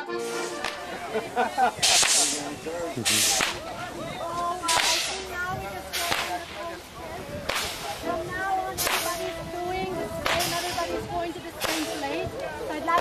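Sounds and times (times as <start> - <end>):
faint voices or music: 0.0 - 13.0
steam locomotive chuffing: 10.2 - 12.2.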